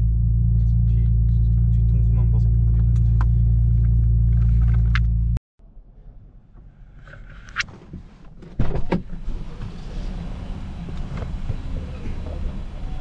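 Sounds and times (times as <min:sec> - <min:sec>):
car engine running inside cabin: 0:00.0 - 0:05.4
sharp knocks and clunks: 0:07.6 - 0:09.2.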